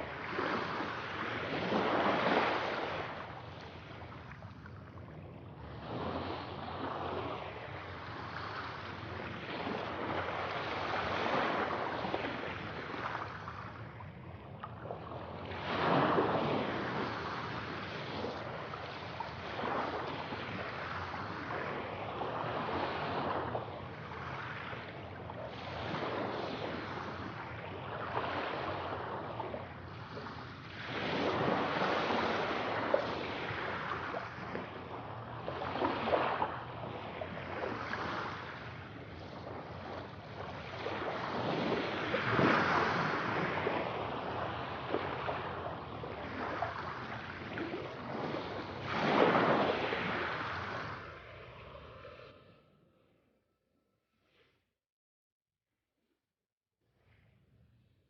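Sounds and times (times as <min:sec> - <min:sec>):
sea waves breaking: 0:00.0 - 0:52.6.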